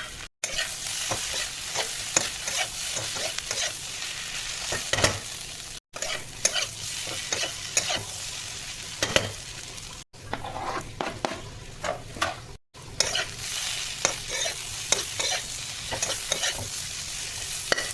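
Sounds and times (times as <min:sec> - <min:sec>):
spatula scraping a pan: 0:00.0 - 0:05.3, 0:06.0 - 0:08.2, 0:10.2 - 0:17.9
potatoes sizzling in oil: 0:00.0 - 0:17.9.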